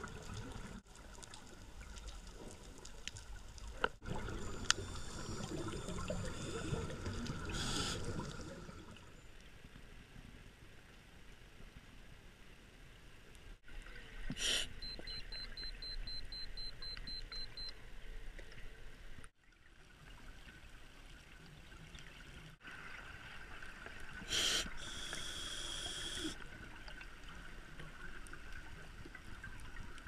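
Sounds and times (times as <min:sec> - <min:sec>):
underwater watery hiss: 0:04.1 - 0:09.0, 0:24.2 - 0:26.4
rapid short high beeps: 0:14.8 - 0:17.7.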